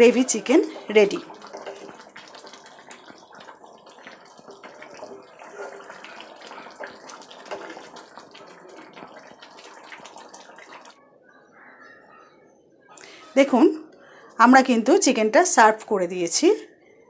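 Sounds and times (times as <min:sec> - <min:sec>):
spatula scraping a pan: 0:00.0 - 0:08.0
gravy bubbling and sizzling: 0:00.0 - 0:11.1.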